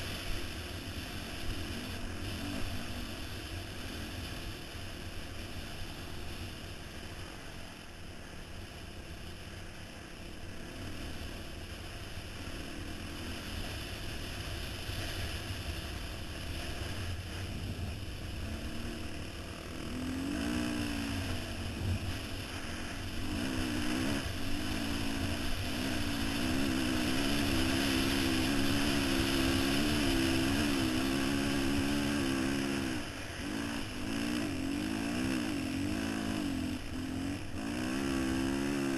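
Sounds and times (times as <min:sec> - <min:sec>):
wind hiss: 0:00.0 - 0:38.9
dirt bike engine revving: 0:10.5 - 0:38.9.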